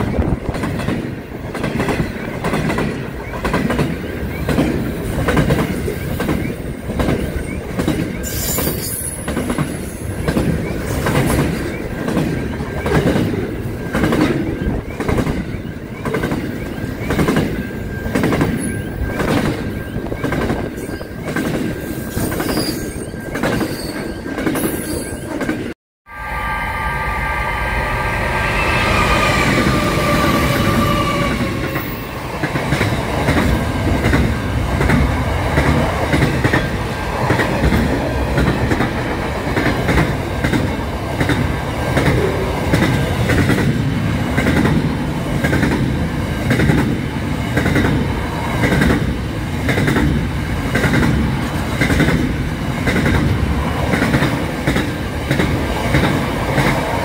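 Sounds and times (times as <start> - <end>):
high ringing tone: 17.5 - 25.4, 26.1 - 32.3
train wheels clicking over rail joints: 44.4 - 57.0.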